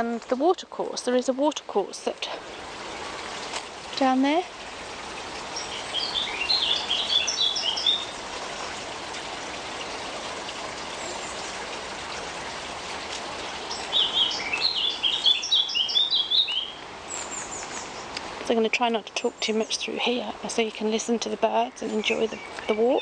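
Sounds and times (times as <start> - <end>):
steady background hiss: 0.0 - 23.0
songbird singing rapid high notes: 5.6 - 8.2, 13.7 - 16.8, 21.0 - 23.0.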